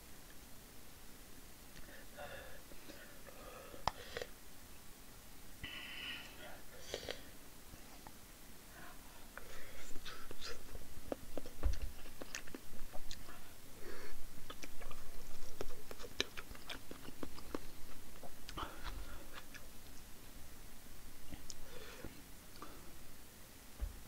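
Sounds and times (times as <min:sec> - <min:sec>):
person chewing food: 0:09.4 - 0:20.1
wet mouth clicks: 0:14.5 - 0:19.7.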